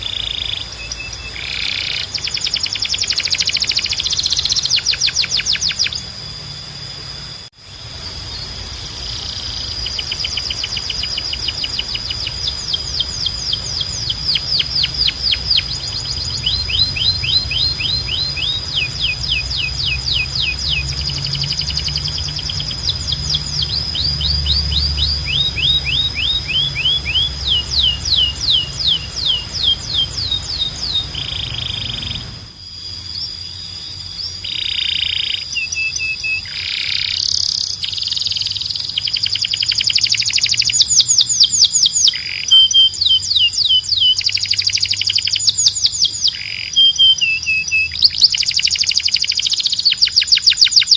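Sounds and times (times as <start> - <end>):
low hum: 0.0 - 36.2
canary singing trills: 0.0 - 50.9
steady high whistle tone: 0.0 - 50.9.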